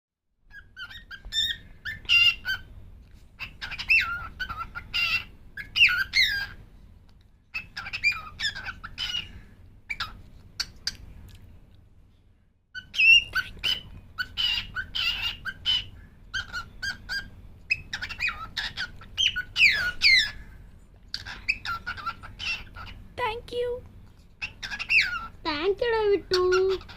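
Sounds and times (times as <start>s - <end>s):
cockatiel chattering and whistling: 0.5s - 2.7s, 3.4s - 6.6s, 7.5s - 9.3s, 9.9s - 11.0s, 12.8s - 20.4s, 21.1s - 23.1s, 24.4s - 25.4s, 26.2s - 26.9s.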